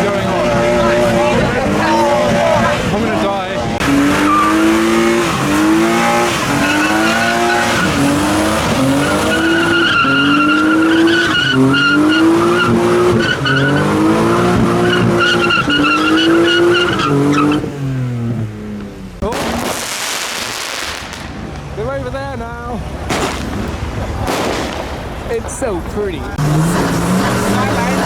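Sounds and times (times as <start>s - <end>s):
tyres squealing: 0.0s - 17.7s
car engine revving: 0.0s - 28.0s.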